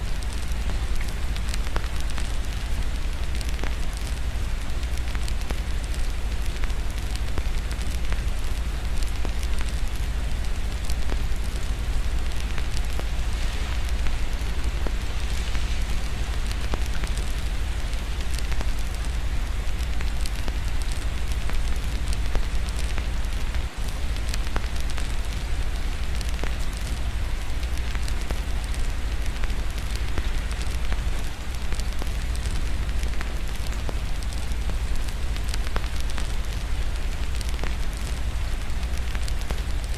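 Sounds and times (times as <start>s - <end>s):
rain: 0.0s - 39.9s
fireplace crackling: 10.4s - 39.9s.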